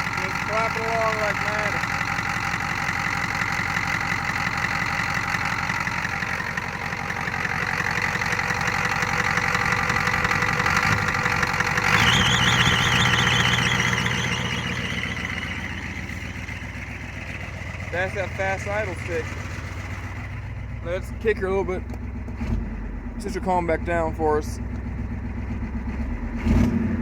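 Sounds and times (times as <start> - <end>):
diesel engine idling with knock: 0.0 - 27.0
wavering whine: 12.0 - 17.1.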